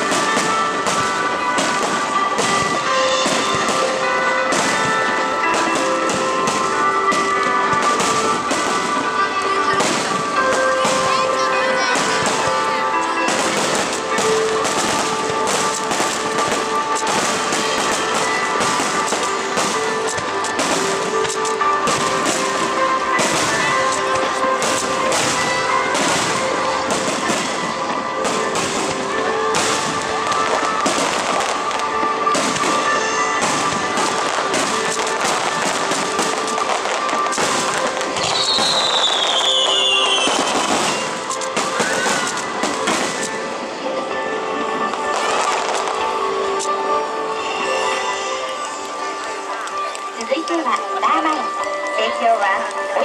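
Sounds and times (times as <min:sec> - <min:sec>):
fireworks bursting and crackling: 0:00.0 - 0:53.0
music playing: 0:00.0 - 0:53.0
falling firework whistle: 0:13.3 - 0:43.5.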